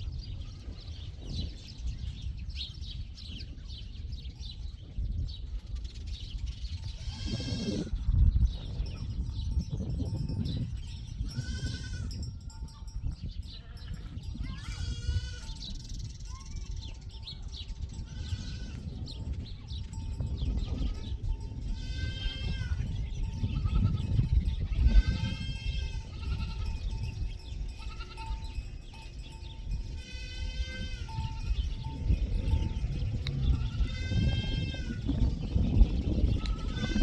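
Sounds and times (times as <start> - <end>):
livestock bleating: 7.0 - 8.0, 11.4 - 12.1, 13.6 - 15.6, 18.1 - 18.8, 21.8 - 22.9, 23.5 - 26.8, 27.8 - 28.4, 30.0 - 31.6, 33.4 - 35.1, 36.4 - 37.0.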